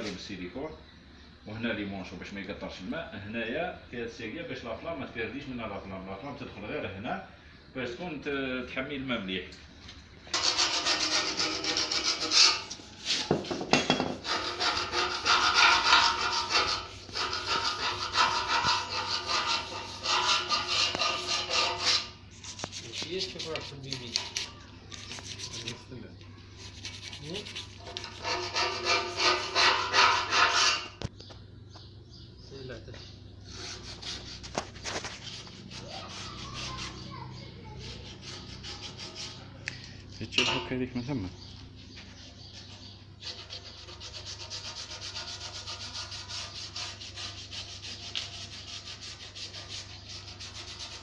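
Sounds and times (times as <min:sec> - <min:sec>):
hand rubbing squeaking: 0:10.3 - 0:25.9, 0:26.6 - 0:31.0, 0:33.4 - 0:39.6.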